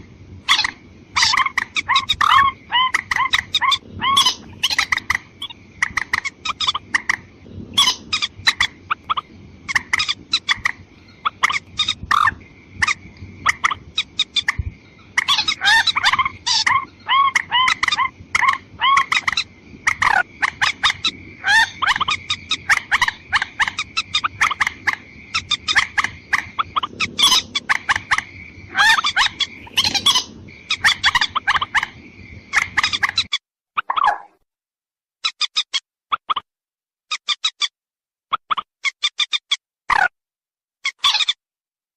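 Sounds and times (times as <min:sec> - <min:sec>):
bird calls clicking and bubbling: 0:00.6 - 0:07.2, 0:32.6 - 0:34.3.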